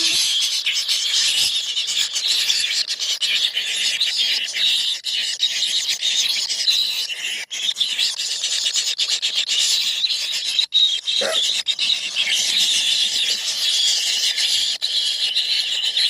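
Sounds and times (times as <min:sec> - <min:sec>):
nestlings begging calls: 0:00.0 - 0:16.0.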